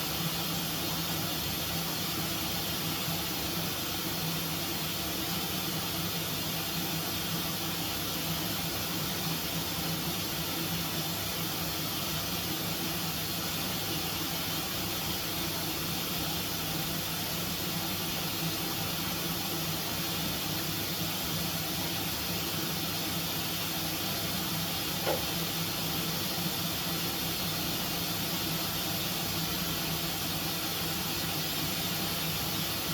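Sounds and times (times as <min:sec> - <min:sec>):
appliance motor hum: 0:23.4 - 0:26.4.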